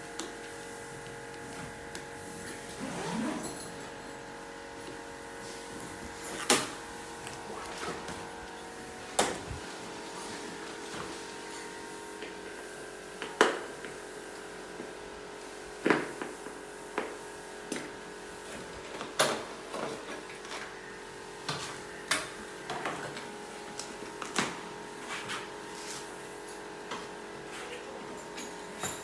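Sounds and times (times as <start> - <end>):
steady machine hum: 0.0 - 15.9.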